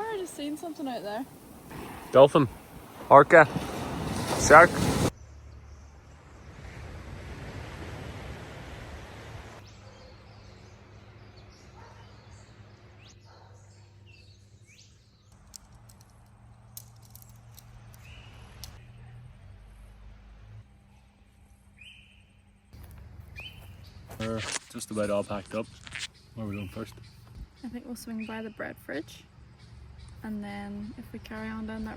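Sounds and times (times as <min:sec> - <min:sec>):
birds chirping: 0:00.0 - 0:06.5, 0:09.6 - 0:19.0, 0:20.8 - 0:31.9
soft rushing noise: 0:00.4 - 0:05.2.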